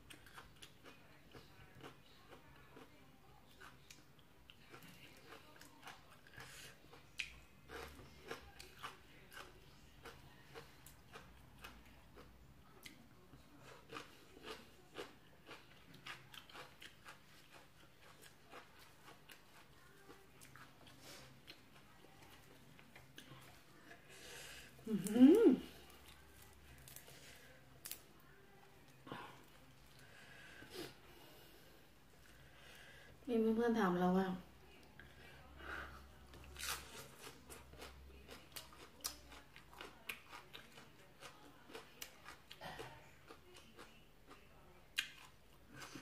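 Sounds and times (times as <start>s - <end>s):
person chewing crunchy food: 0.0s - 2.9s, 3.5s - 28.0s, 36.4s - 44.4s, 45.0s - 46.0s.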